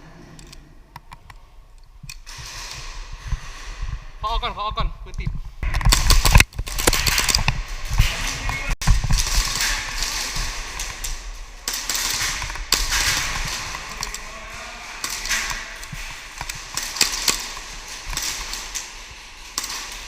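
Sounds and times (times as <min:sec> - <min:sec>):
airsoft pistols firing: 0:08.8 - 0:14.3, 0:15.0 - 0:20.0.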